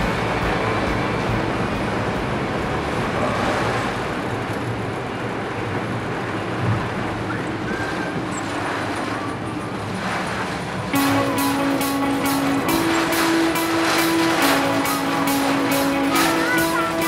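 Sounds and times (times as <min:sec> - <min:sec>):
rain and wind on car: 0:00.0 - 0:10.9
low engine hum: 0:00.0 - 0:17.0
tyres on wet road: 0:00.0 - 0:17.0.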